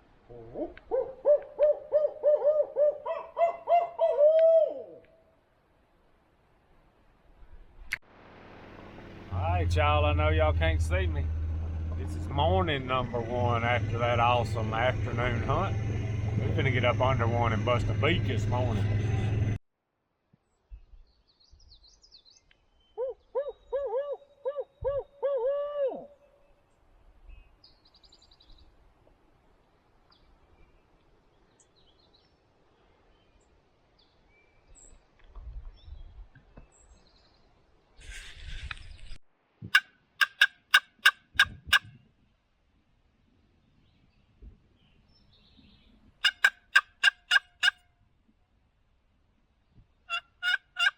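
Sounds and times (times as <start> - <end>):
owl-style hooting: 0.3 - 5.1, 23.0 - 26.3, 40.2 - 41.9, 46.2 - 47.7.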